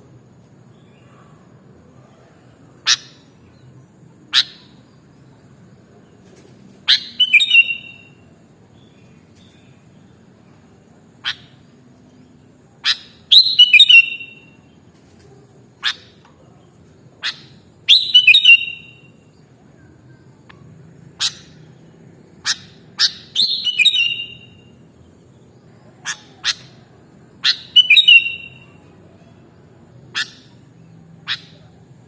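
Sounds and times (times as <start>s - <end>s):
bird chattering phrases: 2.8s - 3.4s, 11.2s - 11.7s, 15.8s - 16.2s, 17.2s - 19.0s, 21.1s - 21.8s, 22.4s - 24.7s, 25.8s - 29.0s, 30.0s - 31.8s
bird calling sharp notes: 26.0s - 28.8s.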